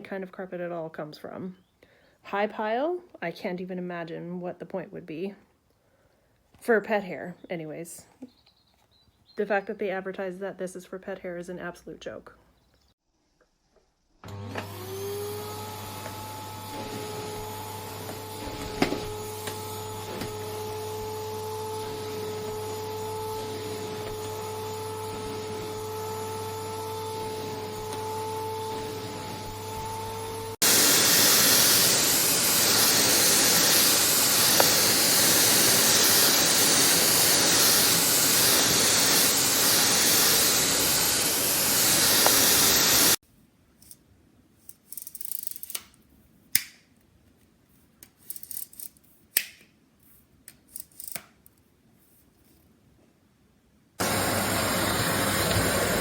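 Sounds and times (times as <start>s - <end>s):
vacuum cleaner running: 14.2s - 43.2s, 54.0s - 56.0s
small clicks and rubs: 44.6s - 52.7s.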